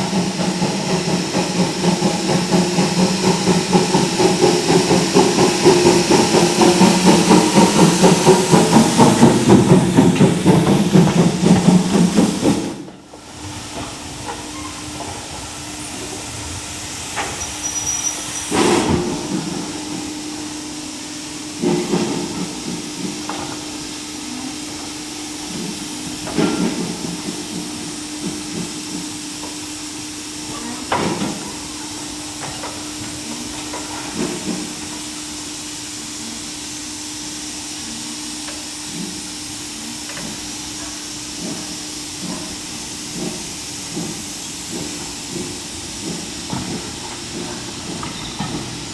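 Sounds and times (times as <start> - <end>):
locomotive engine pulsing: 0.0 - 30.9
locomotive hiss and hum: 0.0 - 48.9.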